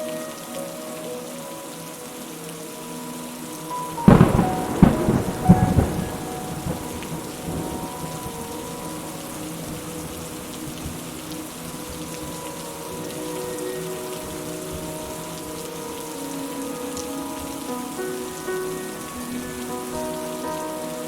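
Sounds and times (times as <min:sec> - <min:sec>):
steady rain falling: 0:00.0 - 0:21.0
thunder clap rumbling: 0:04.0 - 0:11.2.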